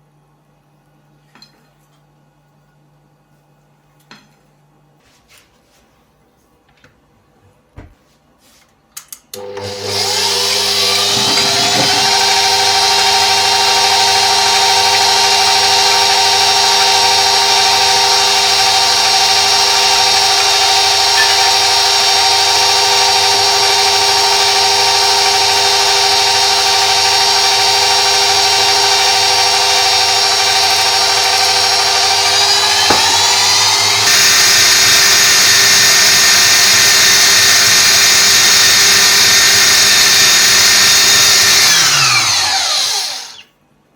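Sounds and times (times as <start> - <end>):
electric mixer motor whining: 9.4 - 43.5.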